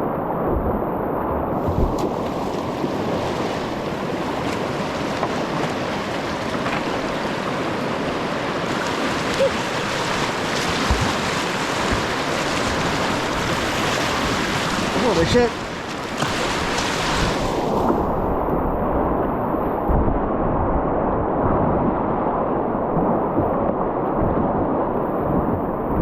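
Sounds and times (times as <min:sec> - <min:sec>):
white water rushing: 0:01.6 - 0:19.8
dull knocks: 0:10.1 - 0:14.5.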